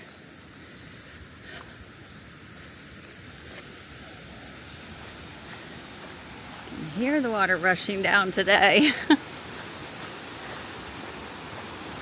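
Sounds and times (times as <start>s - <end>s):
creek rushing over rocks: 3.4s - 12.0s.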